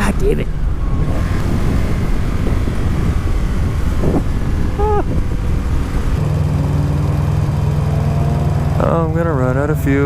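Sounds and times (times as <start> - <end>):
wind rush on microphone: 0.0 - 6.2
motorcycle engine running: 0.6 - 10.0.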